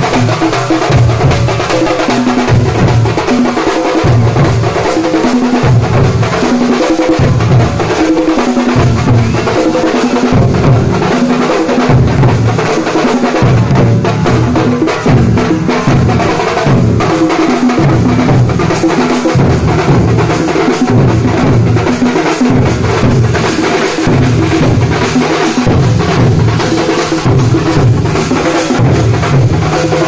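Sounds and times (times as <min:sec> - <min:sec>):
deep drum pattern: 0:00.0 - 0:30.0
loud dense drumming: 0:00.0 - 0:30.0.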